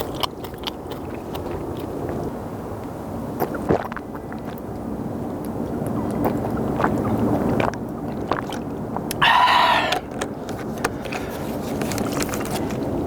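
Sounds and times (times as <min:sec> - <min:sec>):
noodles slurped and chewed: 0:00.0 - 0:02.6
wet mouth clicks: 0:09.1 - 0:10.1.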